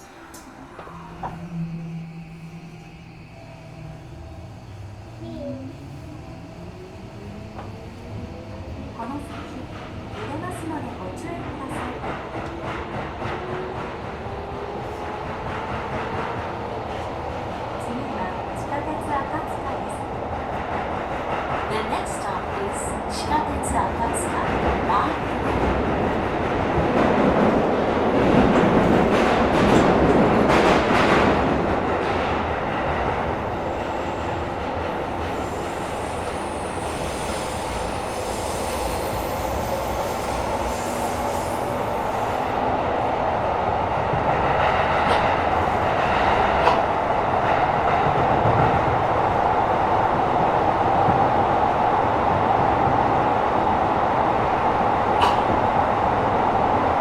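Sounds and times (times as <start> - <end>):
steady tone: 0.0 - 8.7
train wheels rumbling on rail: 0.0 - 57.0.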